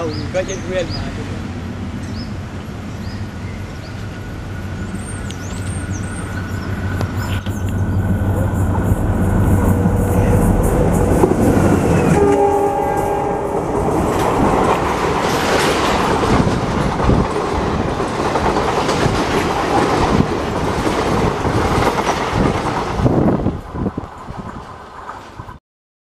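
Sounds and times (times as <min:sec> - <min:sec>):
diesel locomotive engine passing: 0:00.0 - 0:25.6
wheels clickety-clack over rails: 0:05.2 - 0:12.4, 0:13.6 - 0:25.6
train horn blast: 0:08.3 - 0:14.3.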